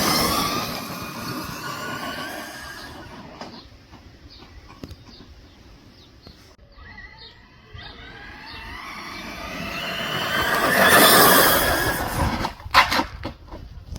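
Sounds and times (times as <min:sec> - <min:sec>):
rc car motor whining: 0:00.0 - 0:03.3, 0:06.8 - 0:12.5.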